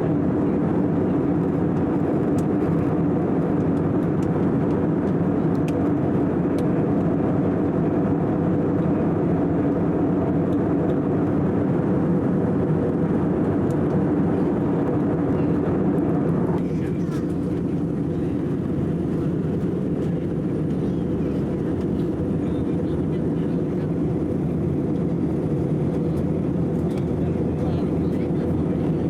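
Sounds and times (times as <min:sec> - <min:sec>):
airliner cabin engine drone: 0:00.0 - 0:29.0.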